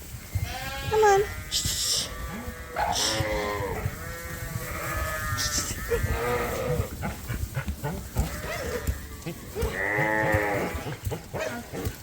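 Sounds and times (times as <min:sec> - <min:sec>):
lambs bleating: 0:00.4 - 0:06.9, 0:08.0 - 0:11.0.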